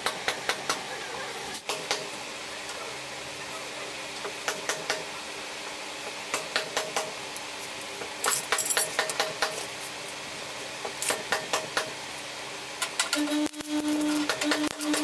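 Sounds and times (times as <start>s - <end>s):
metal parts clanking: 8.2s - 9.0s.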